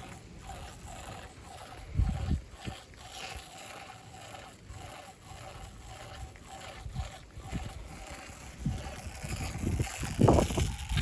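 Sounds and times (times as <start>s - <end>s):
wind rumbling on microphone: 0.0s - 3.4s, 5.6s - 11.0s.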